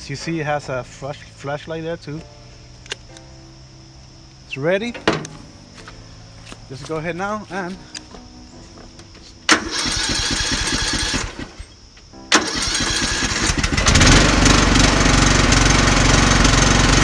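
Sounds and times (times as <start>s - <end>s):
lawn mower engine running: 9.5s - 11.6s, 12.3s - 17.0s
electric starter cranking: 9.5s - 11.7s, 12.3s - 17.0s.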